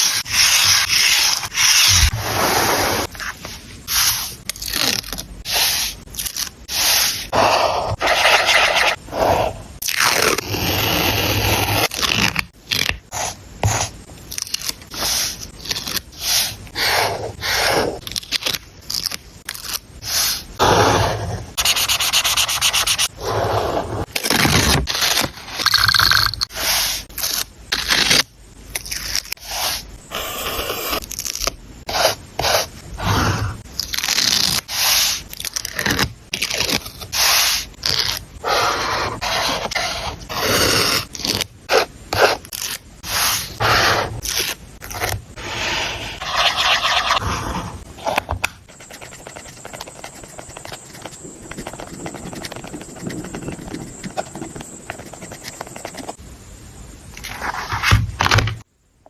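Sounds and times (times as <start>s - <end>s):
scraping and rubbing on paper: 0.0s - 9.6s, 18.9s - 28.2s, 31.9s - 56.2s.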